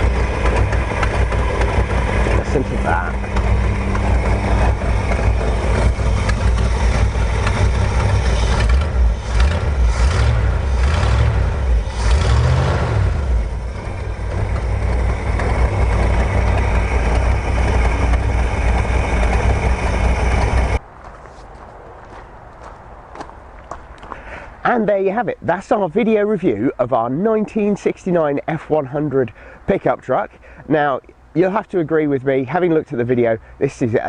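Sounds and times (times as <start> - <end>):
engine idling and revving: 0.0 - 20.8.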